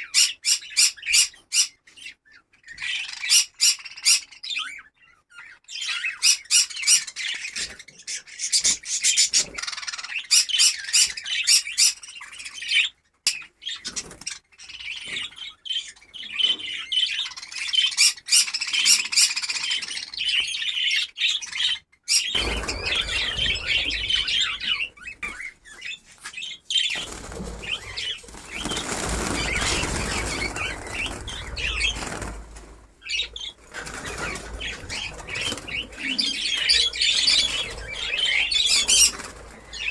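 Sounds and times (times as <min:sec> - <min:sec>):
budgerigars chattering and chirping: 0:00.0 - 0:39.9
wings fluttering: 0:22.3 - 0:39.9.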